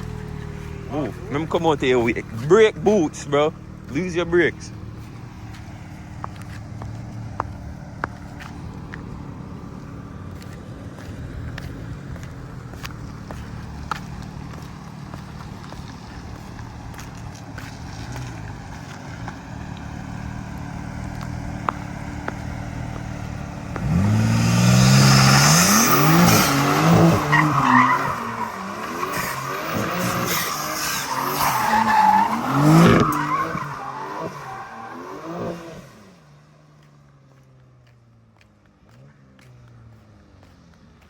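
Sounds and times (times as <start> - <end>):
car engine revving: 0.0 - 36.2
tyres squealing: 25.7 - 35.7.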